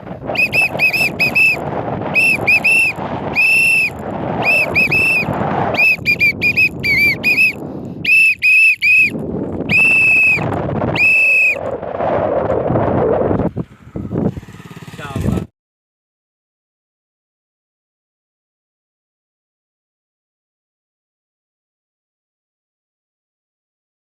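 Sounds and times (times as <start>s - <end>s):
steady rushing noise: 0.0s - 8.0s, 9.0s - 15.5s
whistle notes: 0.3s - 11.7s.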